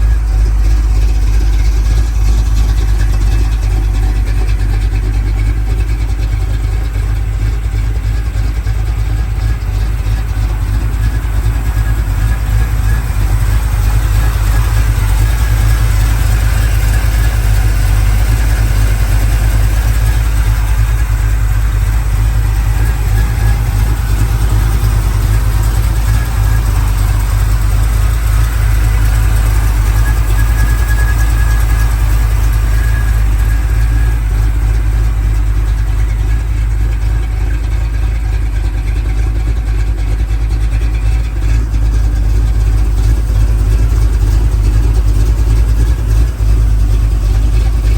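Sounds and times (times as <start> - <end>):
pickup truck engine rumbling: 0.0 - 47.9.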